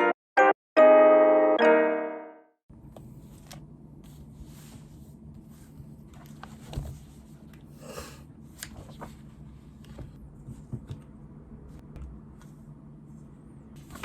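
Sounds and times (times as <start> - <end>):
breathy sniff: 7.7 - 8.3.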